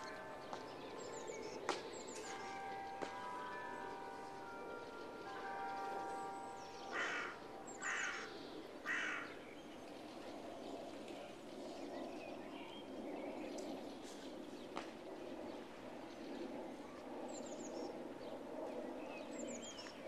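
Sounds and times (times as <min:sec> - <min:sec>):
steady background noise: 0:00.0 - 0:20.0
bird calling: 0:06.8 - 0:09.2.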